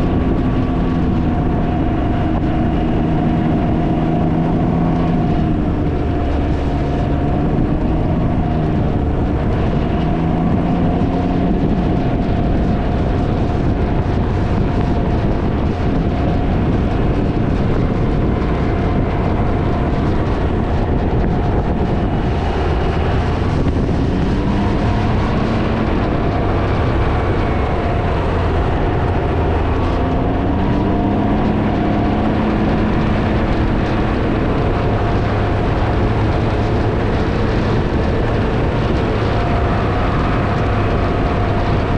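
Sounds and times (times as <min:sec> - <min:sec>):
engine running at road speed: 0:00.0 - 0:41.9
wind noise on microphone: 0:00.0 - 0:41.9.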